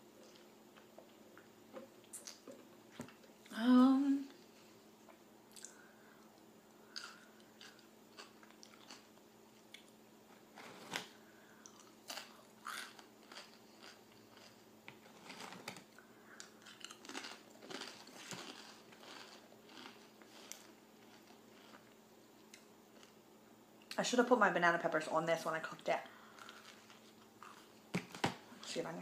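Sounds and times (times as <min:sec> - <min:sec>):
chewing toasted bread: 0:06.9 - 0:10.0, 0:10.8 - 0:23.2, 0:26.2 - 0:27.8.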